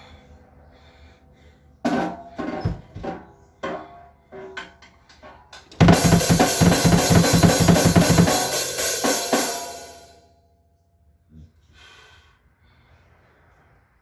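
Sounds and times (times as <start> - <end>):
crashing cymbals: 5.8 - 10.2
fast drum strokes: 5.8 - 10.2.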